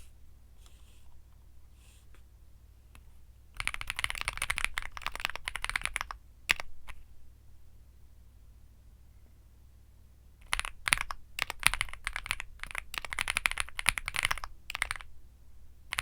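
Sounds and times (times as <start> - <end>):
mechanical keyboard typing: 3.6 - 7.1, 10.4 - 15.1.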